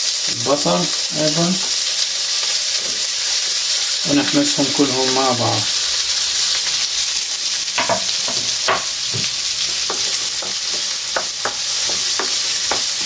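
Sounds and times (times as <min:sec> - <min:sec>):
garlic and onion sizzling in pan: 0:00.0 - 0:13.0
utensil scraping and tapping pan: 0:07.8 - 0:13.0.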